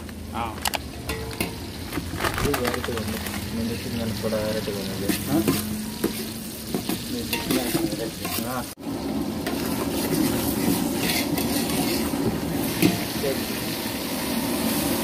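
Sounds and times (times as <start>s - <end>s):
food sizzling in a pan: 0.8s - 2.1s, 3.3s - 15.0s
stirring scrapes: 5.1s - 8.7s, 9.4s - 13.0s.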